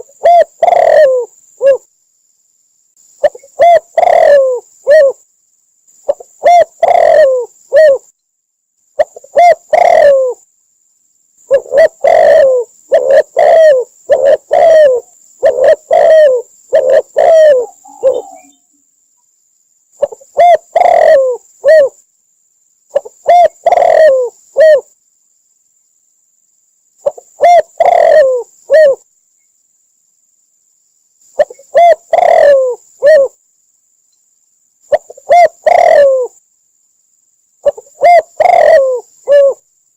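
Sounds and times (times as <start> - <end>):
dove cooing: 0.0 - 1.9, 3.2 - 5.2, 6.1 - 8.1, 9.0 - 10.4, 11.5 - 18.7, 20.0 - 22.0, 22.9 - 24.9, 27.0 - 29.0, 31.4 - 33.4, 34.9 - 36.4, 37.6 - 39.6.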